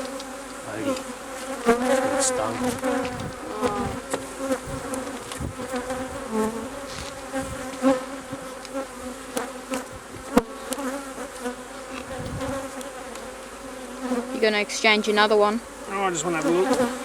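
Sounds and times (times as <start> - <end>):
honey bees buzzing: 0.0 - 17.0.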